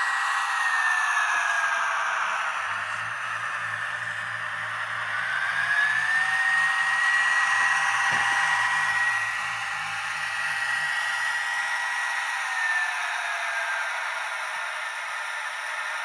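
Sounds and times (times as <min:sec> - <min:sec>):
model train motor whine: 0:00.0 - 0:16.0
faint low diesel engine sound: 0:02.6 - 0:10.9.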